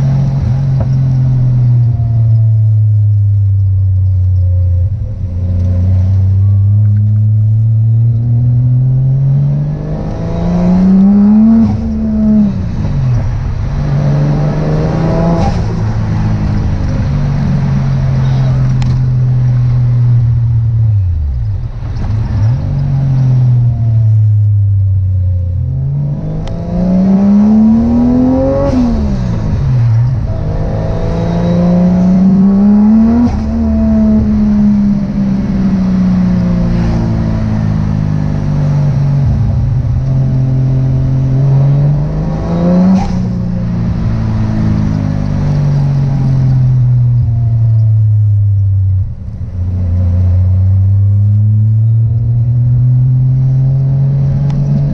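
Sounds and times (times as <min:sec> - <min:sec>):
car engine revving while driving: 0:00.0 - 0:54.9.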